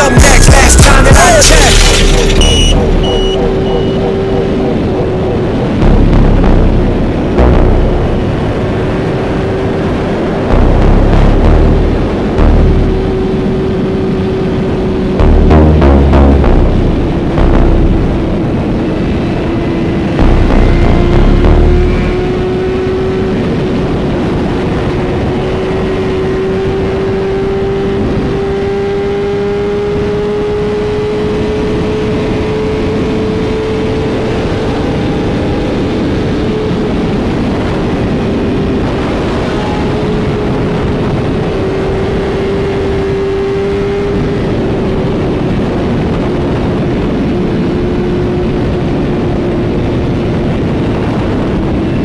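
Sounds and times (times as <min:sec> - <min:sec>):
motorcycle cruising: 0:00.0 - 0:52.0
wind noise on microphone: 0:16.6 - 0:29.2, 0:29.8 - 0:52.0.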